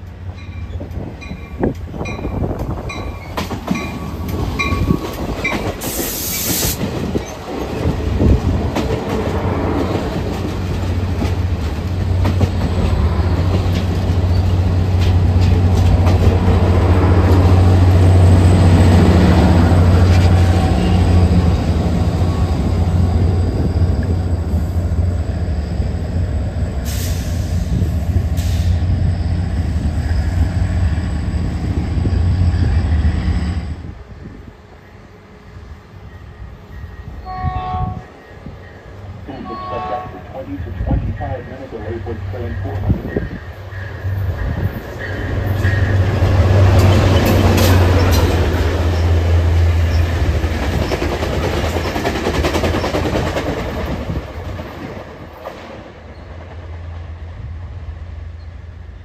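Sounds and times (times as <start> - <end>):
hissing bursts: 5.8 - 6.9
locomotive engine drone: 7.9 - 35.4, 38.4 - 51.8.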